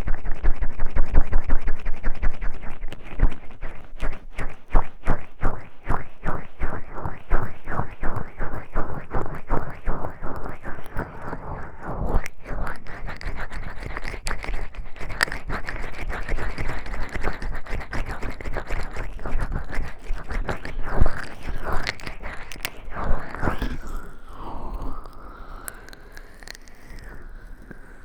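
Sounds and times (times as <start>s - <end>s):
oiled hands rubbing: 1.6s - 23.8s.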